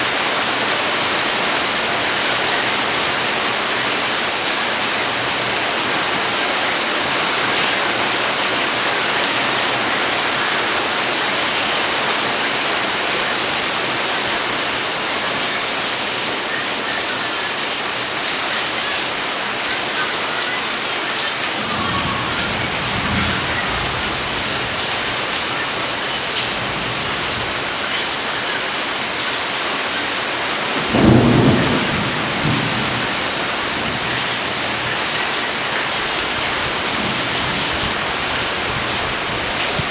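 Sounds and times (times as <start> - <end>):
heavy rain falling: 0.0 - 39.9
thunder rumbling: 21.1 - 28.4, 30.8 - 39.9.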